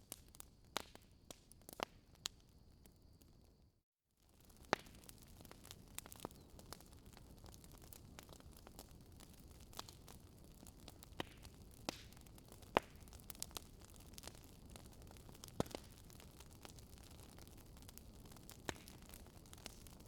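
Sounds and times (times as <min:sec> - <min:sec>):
campfire crackling: 0:00.0 - 0:20.0
fire pops: 0:04.3 - 0:20.0.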